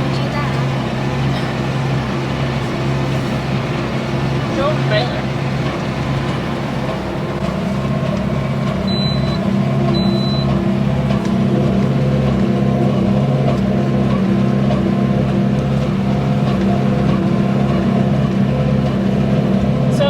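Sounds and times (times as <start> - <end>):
baler pulsing: 0.0 - 20.0
tractor engine running: 0.0 - 20.0.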